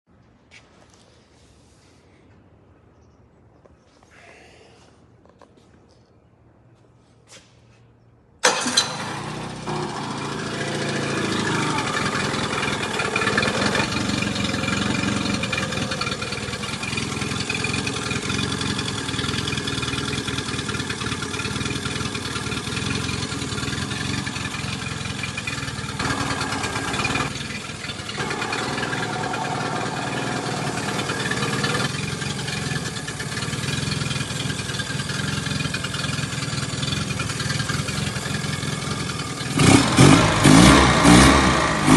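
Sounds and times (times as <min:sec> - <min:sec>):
outboard motor running: 0:08.6 - 0:41.9.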